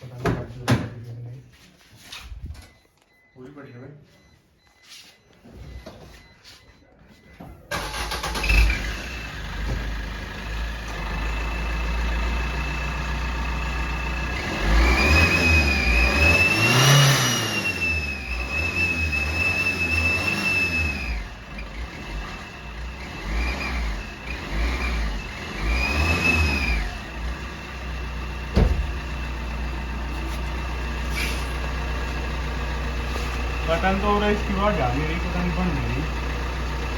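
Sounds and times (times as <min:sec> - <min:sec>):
engine running: 0:07.7 - 0:36.9.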